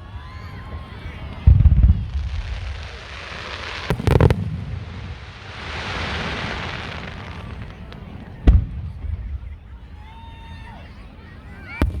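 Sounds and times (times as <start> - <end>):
firework crackles: 0.0 - 12.0
firework hiss: 0.3 - 10.1
firework shell boom: 3.9 - 8.6.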